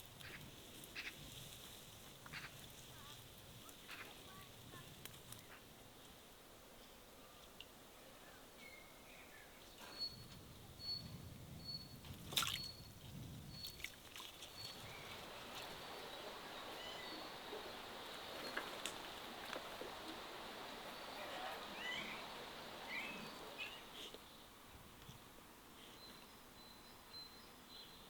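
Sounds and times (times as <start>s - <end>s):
faint steady hiss: 0.0s - 28.0s
birds chirping: 14.4s - 25.2s.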